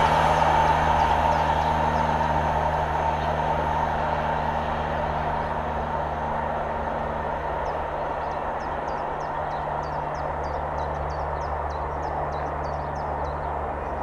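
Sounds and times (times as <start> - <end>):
freight train rumbling past: 0.0 - 14.0
birds chirping faintly: 7.5 - 14.0.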